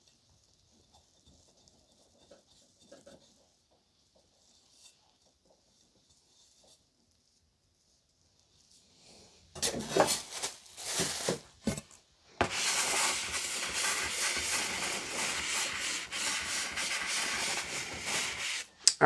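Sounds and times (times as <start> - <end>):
steady scraping rub: 9.6 - 18.8.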